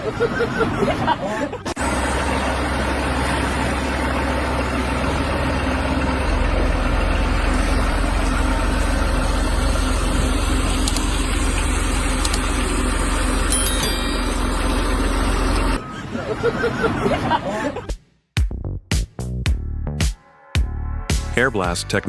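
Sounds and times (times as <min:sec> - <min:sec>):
engine rumbling: 0:01.6 - 0:15.9.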